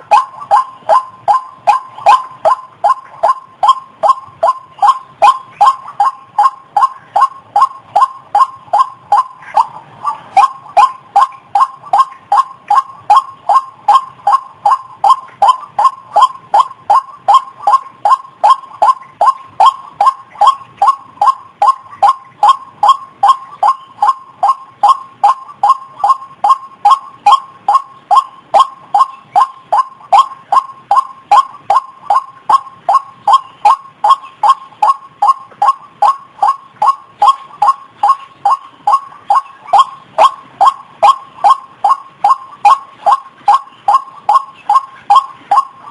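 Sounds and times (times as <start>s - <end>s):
waterhen calling: 0.0s - 45.9s.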